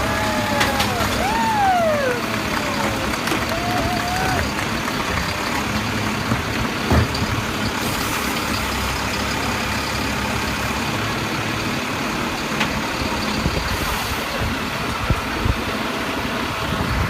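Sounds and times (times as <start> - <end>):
garbage truck diesel engine: 0.0 - 17.0.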